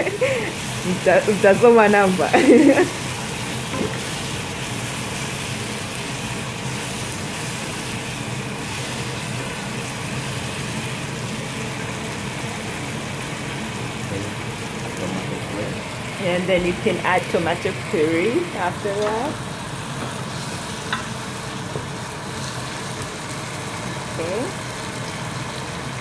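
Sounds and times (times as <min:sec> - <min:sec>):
vegetables sizzling in a pot: 0:00.0 - 0:26.0.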